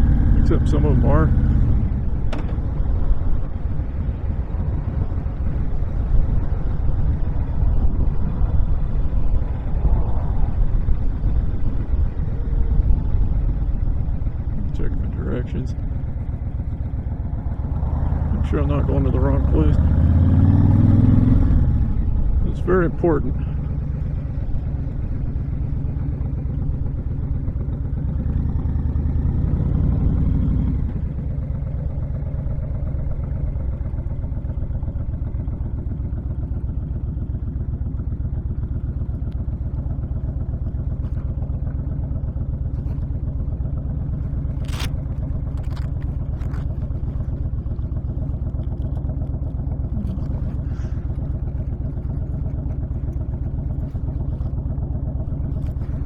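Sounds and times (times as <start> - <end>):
motorcycle engine running: 0.0 - 56.0
wind rushing: 8.0 - 11.9.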